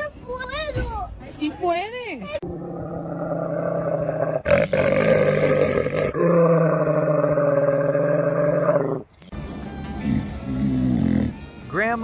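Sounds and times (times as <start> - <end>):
pet growling low: 2.4 - 9.1.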